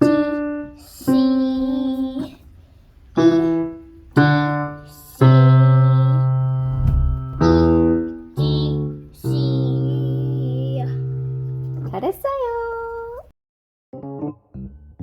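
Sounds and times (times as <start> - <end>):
piano single notes: 3.2 - 12.0.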